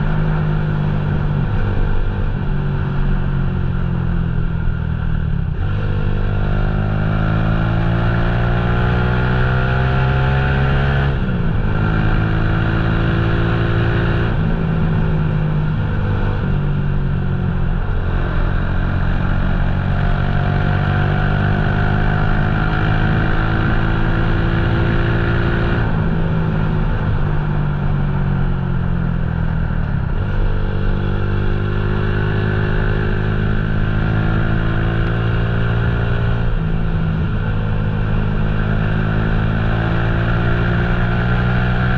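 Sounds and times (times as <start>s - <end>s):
motorcycle engine running: 14.3s - 41.9s.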